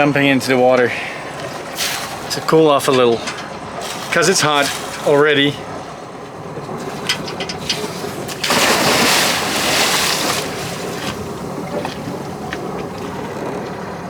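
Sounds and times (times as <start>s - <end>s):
water rushing: 0.3s - 14.0s
loud splash into water: 8.3s - 11.3s.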